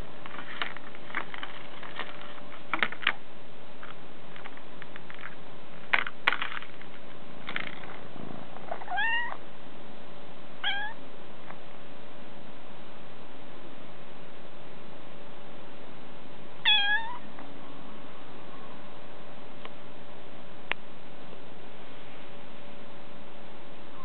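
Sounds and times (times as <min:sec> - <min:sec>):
kitten meowing: 0:08.8 - 0:09.4, 0:10.6 - 0:11.0, 0:16.6 - 0:17.3.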